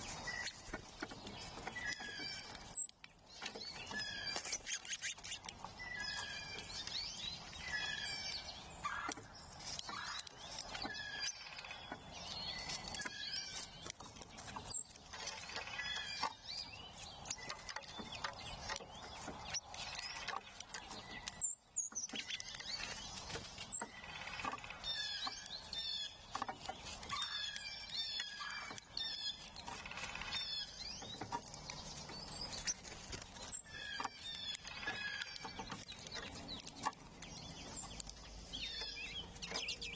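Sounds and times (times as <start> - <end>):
songbirds singing and chirping: 0.0 - 39.9
outdoor background hiss: 38.3 - 39.9.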